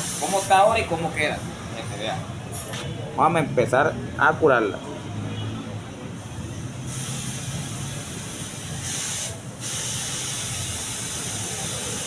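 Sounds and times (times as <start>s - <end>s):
hissing spray: 0.0s - 1.5s, 6.2s - 12.0s.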